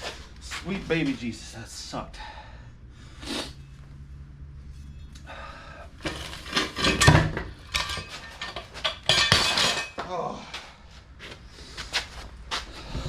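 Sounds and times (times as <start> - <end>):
metal tools clanking: 6.0 - 10.0.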